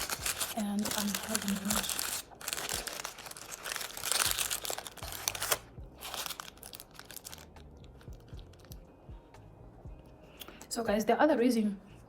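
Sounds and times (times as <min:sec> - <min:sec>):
paper packaging crinkling: 0:00.0 - 0:08.8.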